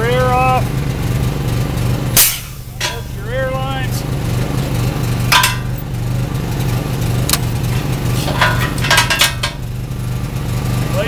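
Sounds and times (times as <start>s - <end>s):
engine running: 0.0s - 11.0s
sharp knocks of couplings: 2.2s - 3.2s, 5.3s - 5.8s, 7.2s - 9.7s.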